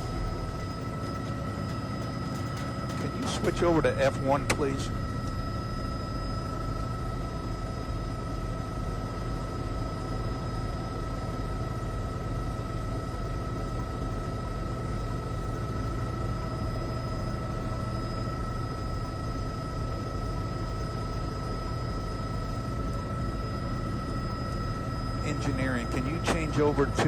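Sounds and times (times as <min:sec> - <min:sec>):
low rumble and hiss: 0:23.6 - 0:27.0.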